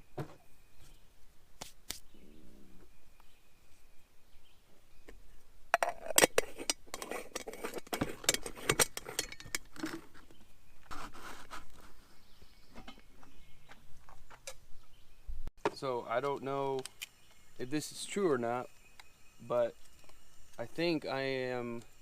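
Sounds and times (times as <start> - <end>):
cookware clinking and knocking: 5.8 - 9.7.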